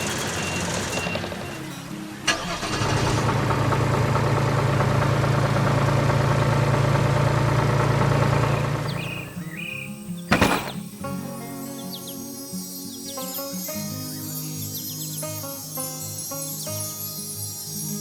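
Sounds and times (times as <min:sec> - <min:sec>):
farm machine engine running: 0:00.0 - 0:10.7
faint bird-like chirps: 0:08.4 - 0:18.0.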